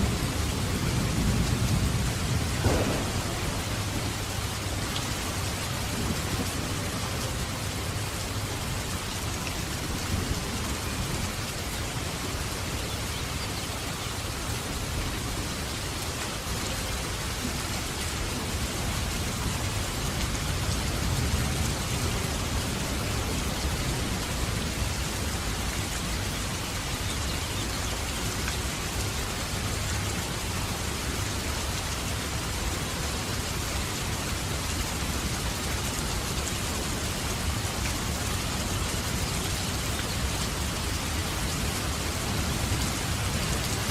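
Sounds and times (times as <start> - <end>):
low rumble of thunder: 0.0 - 7.4
steady rain falling: 0.0 - 43.9.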